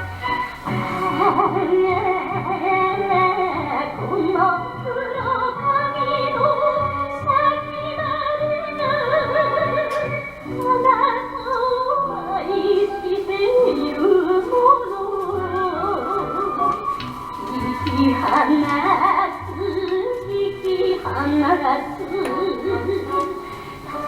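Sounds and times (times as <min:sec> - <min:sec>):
instrumental backing: 0:00.0 - 0:24.0
song with heavy vibrato: 0:00.0 - 0:24.0.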